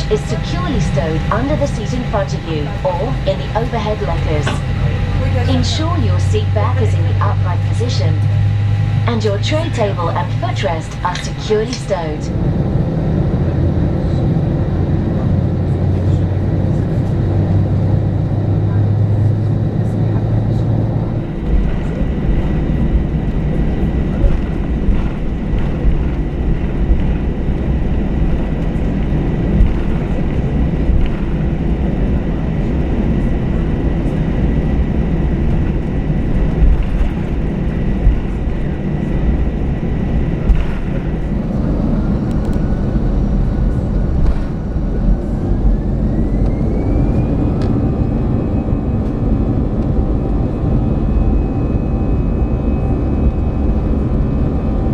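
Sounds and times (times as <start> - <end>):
jet engine cabin rumble: 0.0 - 54.9
whine rising in pitch: 19.8 - 54.9.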